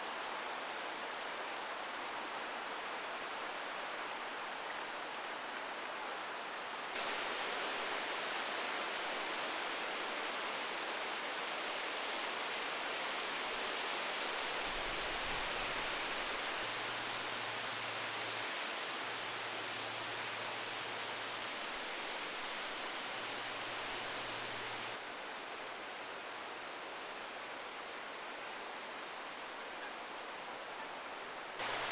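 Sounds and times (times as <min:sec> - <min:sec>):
heavy rain pouring: 0:31.6 - 0:31.9.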